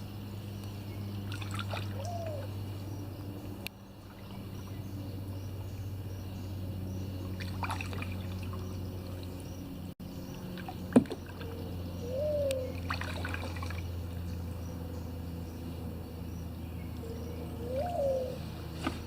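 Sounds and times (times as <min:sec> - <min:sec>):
steady low hum: 0:00.0 - 0:19.0
kayak paddle strokes in water: 0:01.2 - 0:02.1, 0:07.2 - 0:09.6, 0:12.7 - 0:14.5, 0:18.4 - 0:19.0
water trickling off paddle: 0:01.3 - 0:02.1, 0:07.2 - 0:09.4, 0:10.4 - 0:11.5, 0:12.7 - 0:14.3.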